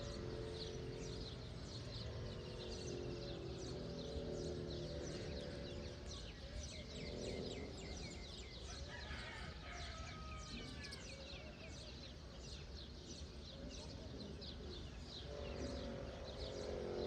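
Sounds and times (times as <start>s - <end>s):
drawn-out bird call: 0.0s - 11.0s, 14.9s - 17.0s
small birds chirping: 0.0s - 17.0s.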